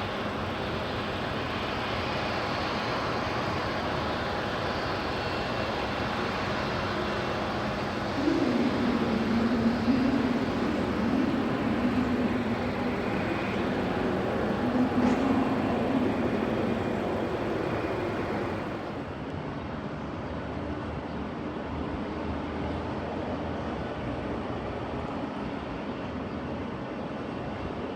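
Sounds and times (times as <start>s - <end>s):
jet engine roar: 0.0s - 19.3s.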